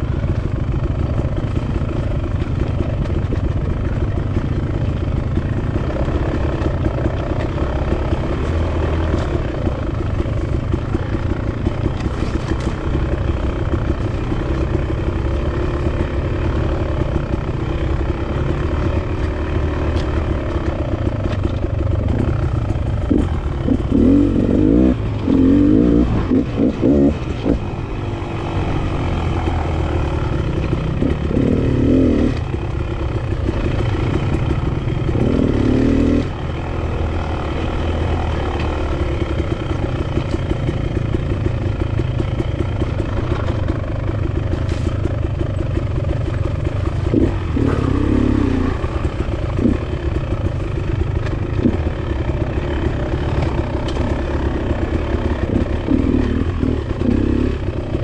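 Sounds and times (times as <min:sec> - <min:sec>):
dirt bike engine revving: 0:22.0 - 0:45.0, 0:46.1 - 0:58.0.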